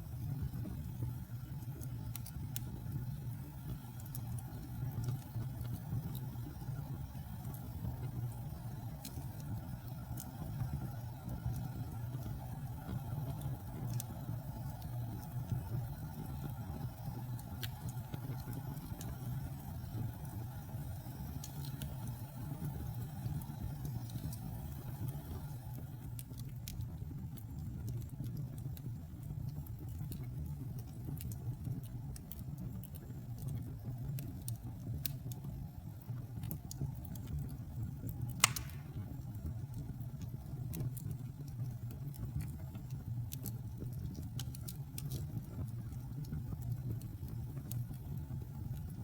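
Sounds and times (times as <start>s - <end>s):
wood fire rumbling and crackling: 0.0s - 49.0s
loud sharp pop of fire: 38.4s - 39.3s.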